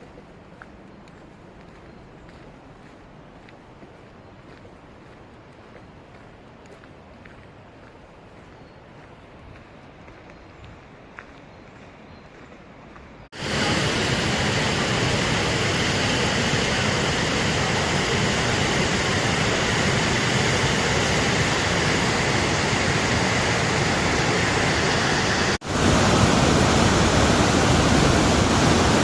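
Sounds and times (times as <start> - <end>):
loud steady rushing noise: 13.4 - 29.0.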